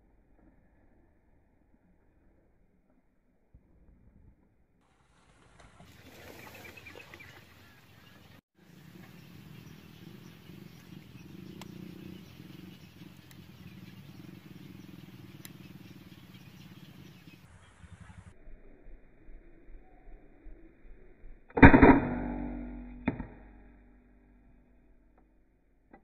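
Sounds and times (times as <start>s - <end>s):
cormorants calling: 6.0s - 17.4s.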